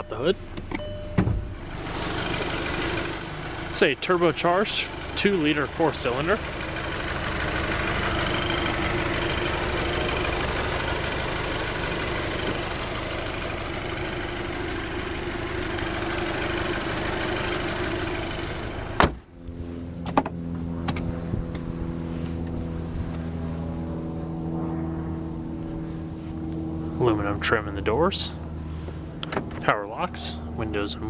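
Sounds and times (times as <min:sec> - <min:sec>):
car engine idling: 0:00.0 - 0:31.0
sharp thump: 0:01.1 - 0:01.5, 0:19.0 - 0:19.2.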